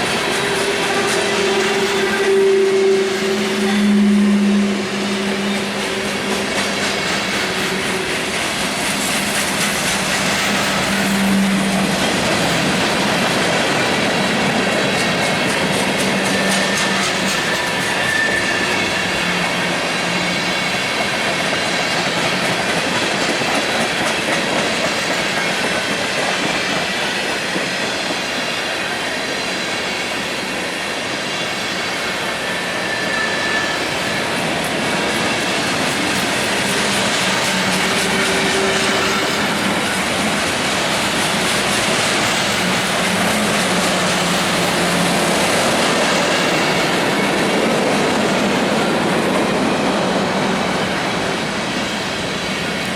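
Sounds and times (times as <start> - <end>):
train rumbling past: 0.0 - 52.9
wheel squeals: 16.0 - 20.7, 32.4 - 34.4
wheels clacking over rails: 33.8 - 52.9.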